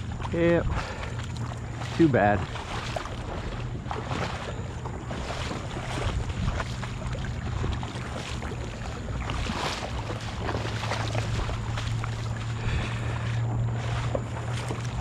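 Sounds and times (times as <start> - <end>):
low rumble: 0.0 - 15.0
wind on microphone: 5.1 - 15.0.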